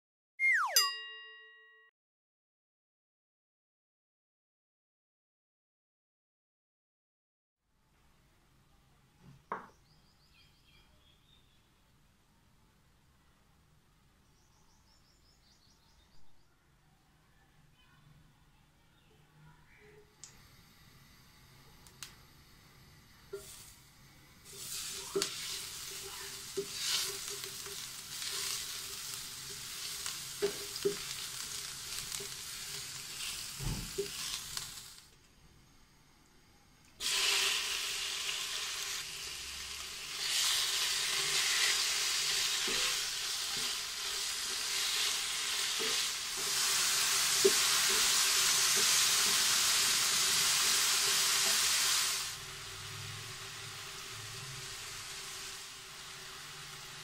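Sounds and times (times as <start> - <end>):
food sizzling in a frying pan: 20.4 - 35.1, 37.0 - 57.0
utensil stirring in a pan: 23.3 - 35.0, 37.0 - 52.4.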